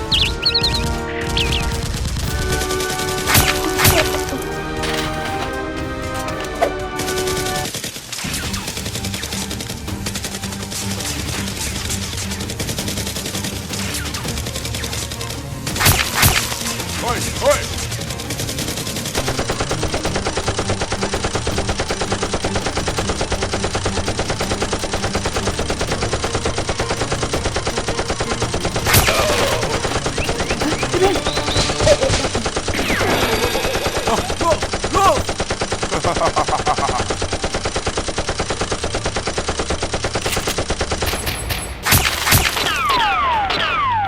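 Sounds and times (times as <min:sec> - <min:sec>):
rapid automatic gunfire: 0:07.0 - 0:11.0.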